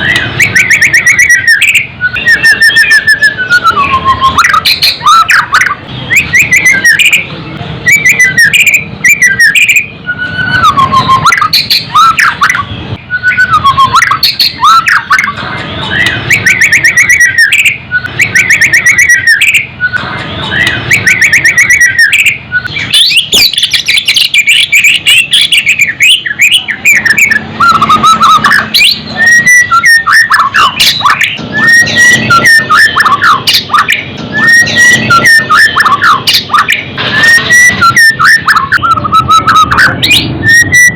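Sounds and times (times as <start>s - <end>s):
bird singing whistled phrases: 0.0s - 40.9s.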